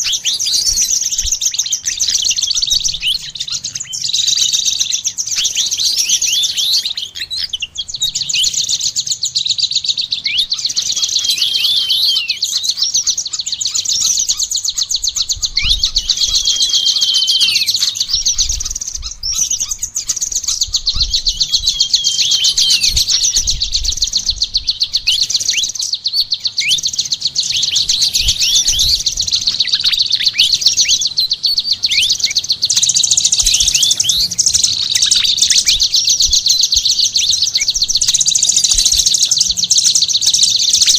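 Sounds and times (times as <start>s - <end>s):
songbirds chirping and trilling: 0.0s - 40.9s
sweeping bird whistles: 0.0s - 40.9s.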